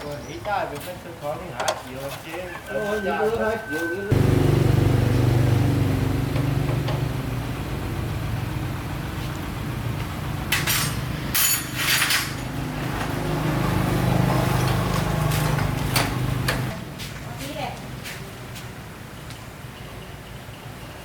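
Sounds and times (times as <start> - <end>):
motorbike engine idling: 4.1 - 10.4.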